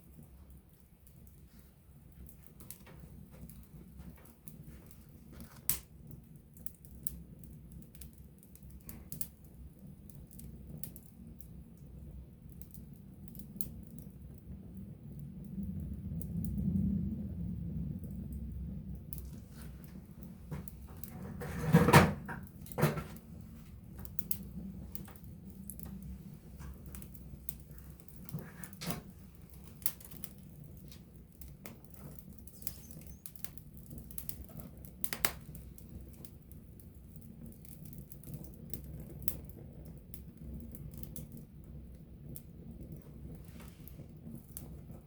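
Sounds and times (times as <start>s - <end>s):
campfire crackling and popping: 0.0s - 45.0s
low rumble of flames: 0.0s - 45.0s.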